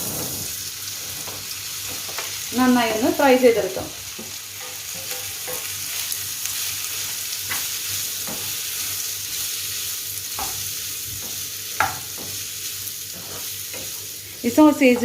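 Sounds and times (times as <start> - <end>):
sausage sizzling in a frying pan: 0.0 - 15.0
utensil scraping a pan: 4.6 - 5.8, 13.1 - 15.0.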